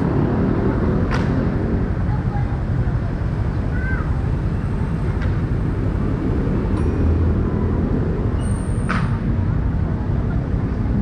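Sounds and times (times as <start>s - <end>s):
road noise: 0.0s - 11.0s
street traffic: 0.0s - 11.0s
brief high squeak: 8.4s - 9.1s.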